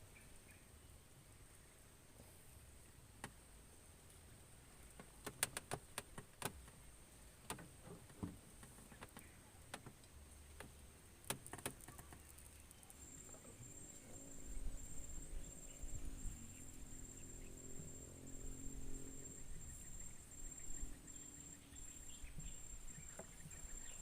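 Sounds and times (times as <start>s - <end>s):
faint clicks and taps: 7.4s - 13.5s.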